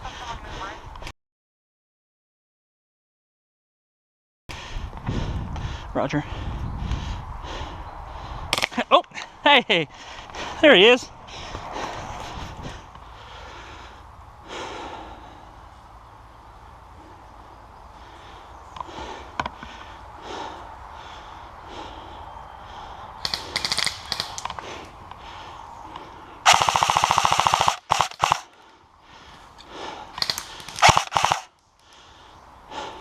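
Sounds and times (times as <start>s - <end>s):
airsoft gun full-auto bursts: 23.2s - 24.4s, 26.5s - 28.5s, 30.2s - 31.5s
airsoft gun shots: 23.2s - 24.4s, 26.5s - 28.5s, 30.2s - 31.5s.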